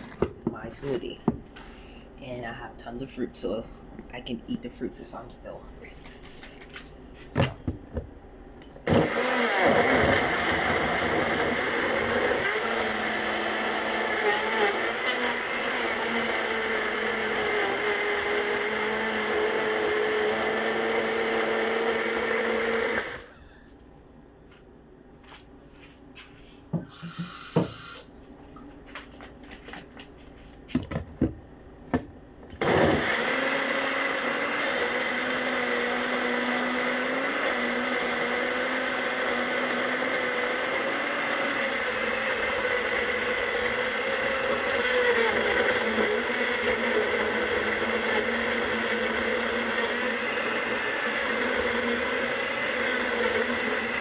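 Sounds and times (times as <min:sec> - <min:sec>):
blender running: 0:08.8 - 0:23.4, 0:26.9 - 0:28.1, 0:32.6 - 0:54.0.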